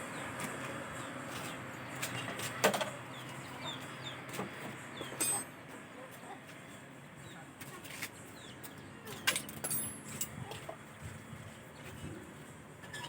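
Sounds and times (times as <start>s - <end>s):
birds clucking and chirping: 0.0s - 7.3s.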